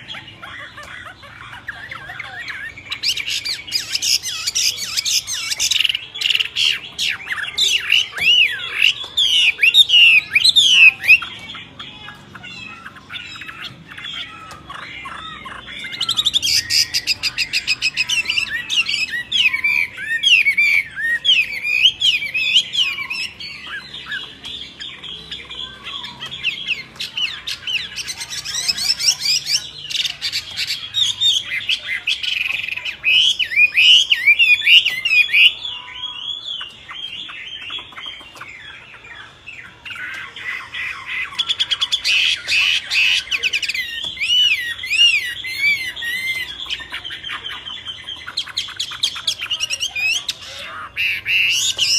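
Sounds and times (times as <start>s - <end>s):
songbirds chirping: 0.0s - 51.9s.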